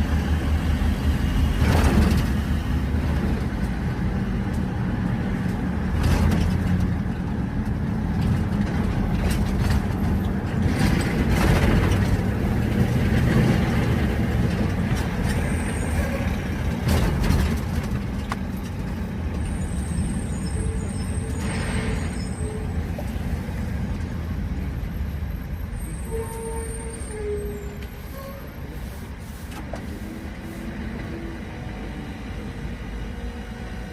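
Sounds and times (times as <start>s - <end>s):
car engine rumble: 0.0s - 25.7s.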